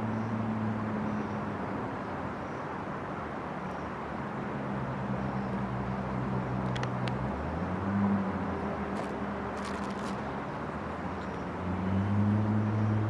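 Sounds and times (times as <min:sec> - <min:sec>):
low engine hum: 0:04.4 - 0:13.0.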